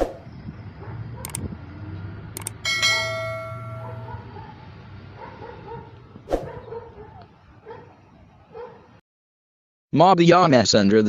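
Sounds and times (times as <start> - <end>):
short clicks: 1.2 - 1.5, 2.4 - 2.6
metallic bell-like ring: 2.6 - 4.2.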